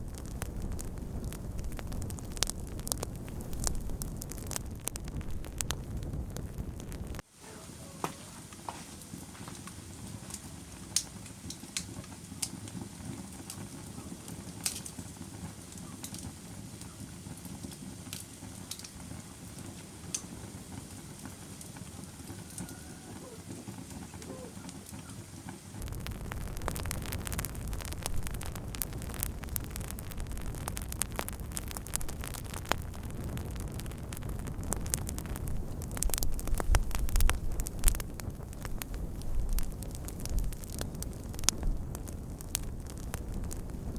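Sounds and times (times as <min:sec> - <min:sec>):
deep rumble: 0:00.0 - 0:07.2, 0:25.8 - 0:43.9
wood fire crackling and popping: 0:00.0 - 0:43.9.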